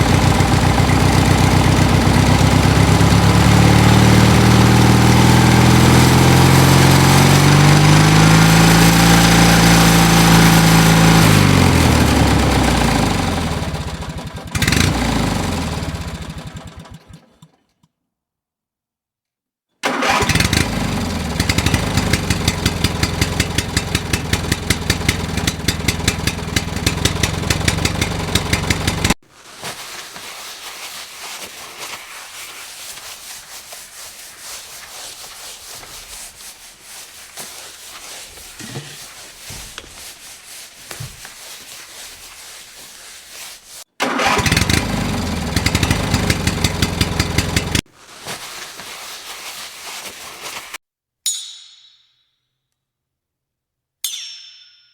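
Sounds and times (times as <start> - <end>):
low engine rumble: 0.0 - 6.6
engine chugging: 0.0 - 17.4, 19.9 - 29.2, 44.0 - 47.8.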